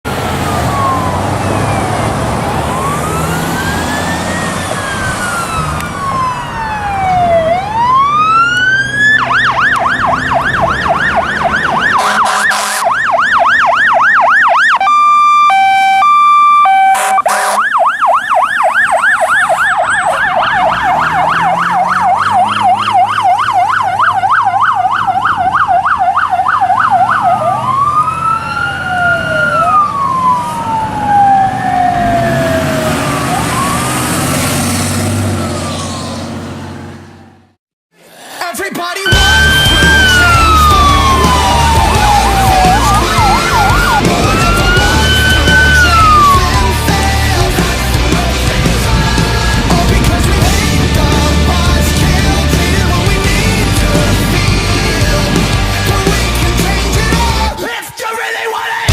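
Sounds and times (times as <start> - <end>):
engine rumble: 0.0 - 12.0, 17.7 - 37.6, 39.1 - 57.6
fire engine sirens wailing and yelping: 0.0 - 37.6, 39.0 - 58.9
horn blasts: 11.9 - 13.0, 14.8 - 17.7.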